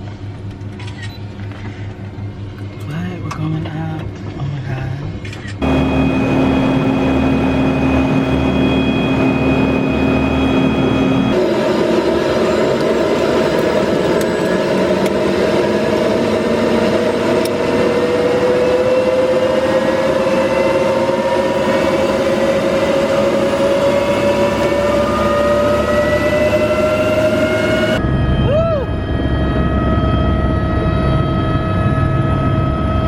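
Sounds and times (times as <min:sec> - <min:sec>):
helicopter engine and rotor: 0:00.0 - 0:02.8, 0:05.2 - 0:33.0.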